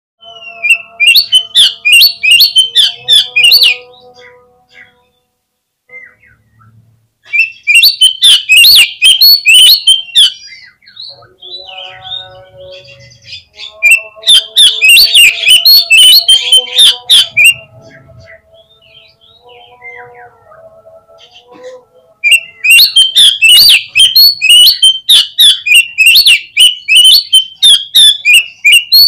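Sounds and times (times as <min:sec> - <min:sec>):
bird song with sweeping whistles: 0:00.2 - 0:04.0, 0:07.3 - 0:20.3, 0:22.2 - 0:29.0
quiet bird chatter: 0:05.9 - 0:29.0.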